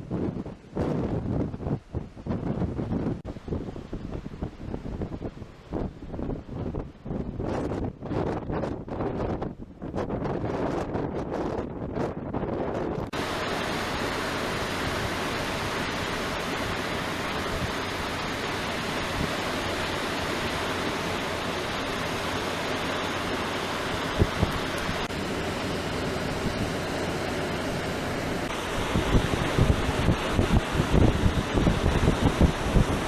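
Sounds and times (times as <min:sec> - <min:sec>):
wind buffeting microphone: 0:00.0 - 0:33.0
surf rushing: 0:13.1 - 0:33.0.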